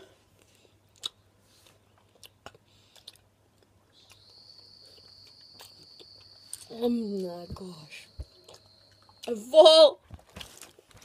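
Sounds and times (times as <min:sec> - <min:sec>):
wet chewing mouth clicks: 0:00.9 - 0:06.7.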